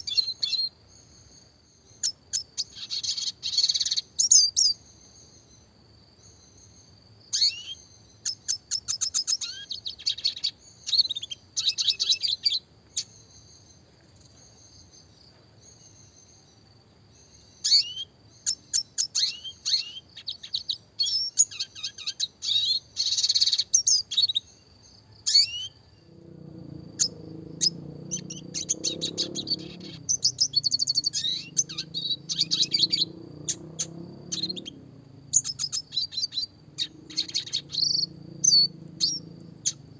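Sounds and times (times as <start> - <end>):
bird singing high twitters: 0.0 - 39.9
low rumbling noise: 26.0 - 39.9.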